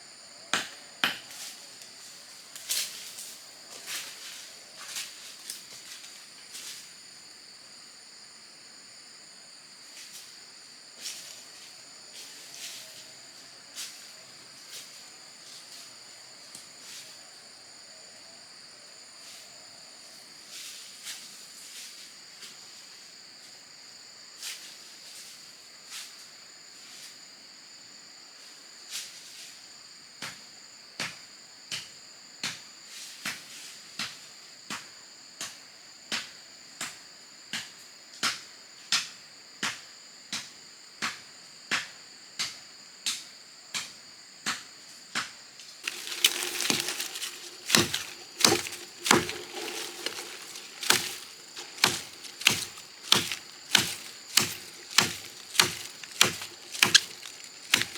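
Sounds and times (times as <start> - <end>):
crickets or cicadas droning: 0.0 - 57.9
chopping strikes into wood: 45.8 - 57.9
crackling rustling noise: 45.8 - 57.9.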